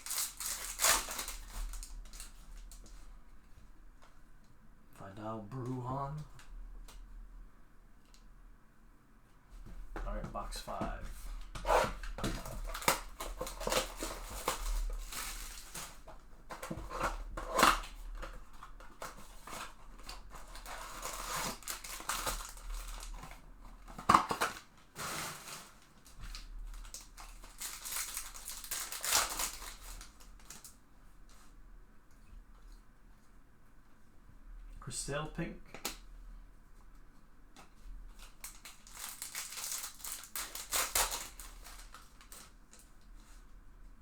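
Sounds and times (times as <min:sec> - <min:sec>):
wrappers ripping and crinkling: 0:00.0 - 0:03.0, 0:11.4 - 0:30.8, 0:38.1 - 0:43.3
cardboard box tearing: 0:11.6 - 0:18.3.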